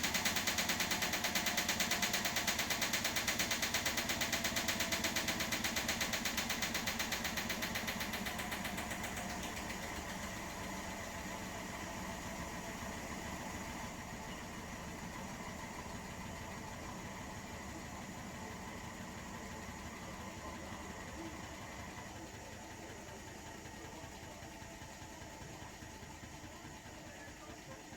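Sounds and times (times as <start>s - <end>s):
washing machine drum knocking: 0.0s - 11.2s
washing machine hum: 0.0s - 27.9s.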